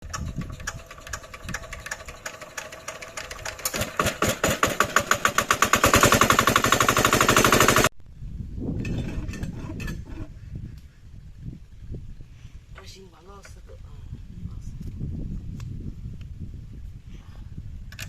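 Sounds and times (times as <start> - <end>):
diesel pump engine knocking: 0.1 - 7.9.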